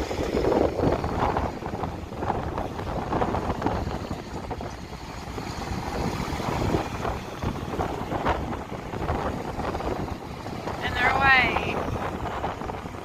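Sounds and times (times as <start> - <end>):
vehicles rumbling past: 0.0 - 13.0
wind buffeting microphone: 0.0 - 13.0.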